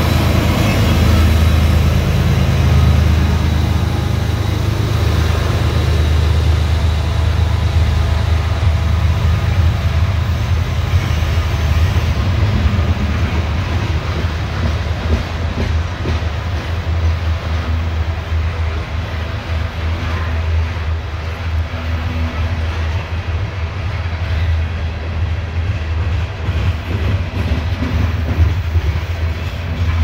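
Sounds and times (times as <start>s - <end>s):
deep diesel locomotive rumble: 0.0s - 30.0s.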